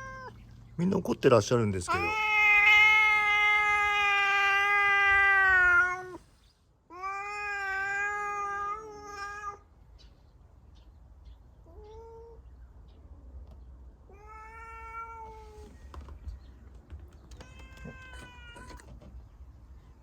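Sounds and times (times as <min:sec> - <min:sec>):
cat yowling: 0:00.0 - 0:00.4, 0:01.9 - 0:06.2, 0:06.9 - 0:09.6, 0:14.1 - 0:15.7, 0:17.3 - 0:18.9.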